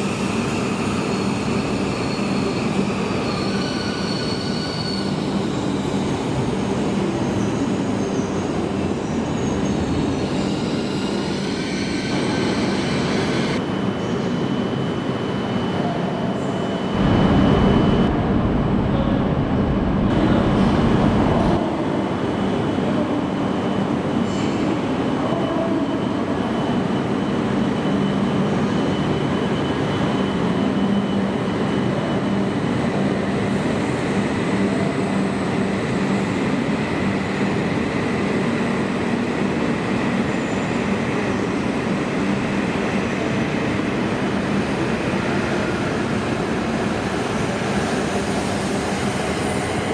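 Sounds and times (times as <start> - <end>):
train running: 15.8 - 49.9
heavy low rumble: 16.9 - 21.8.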